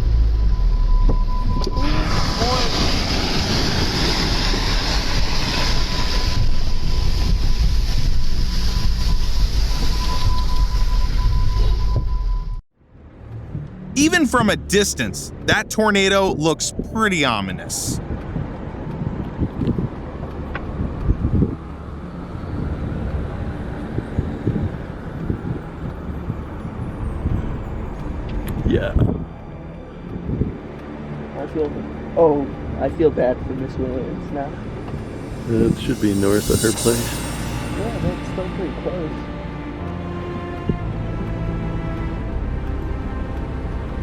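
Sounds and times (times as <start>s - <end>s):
thin steady tone: 35.1s - 38.7s.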